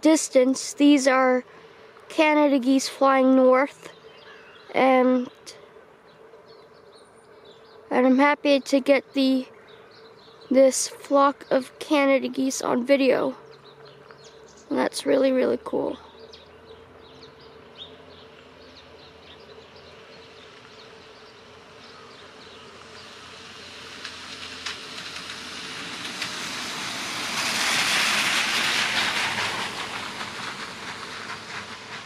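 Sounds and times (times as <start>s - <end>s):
car road noise: 12.6s - 32.0s.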